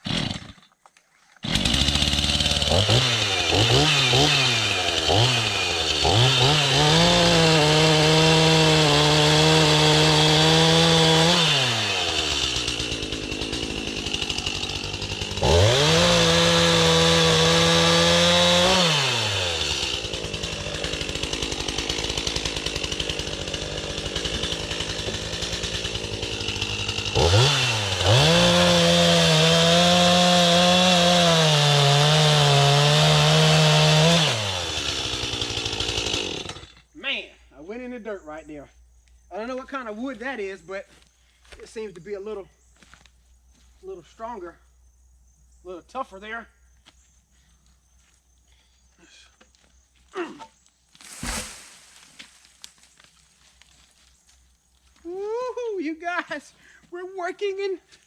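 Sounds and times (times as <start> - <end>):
chainsaw revving and cutting wood: 0.0 - 0.8, 1.4 - 37.0, 51.0 - 53.1.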